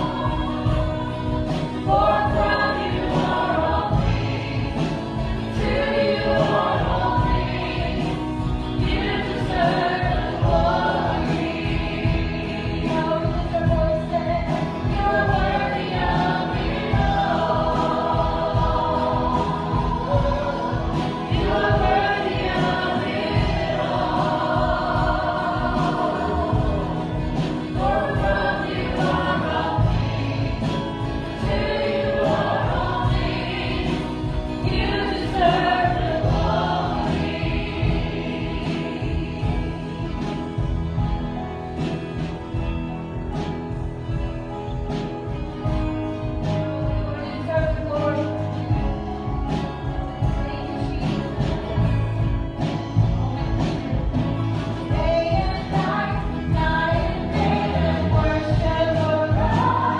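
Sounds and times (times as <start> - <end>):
band with steady beat: 0.0 - 59.9
group of voices singing: 0.0 - 59.9.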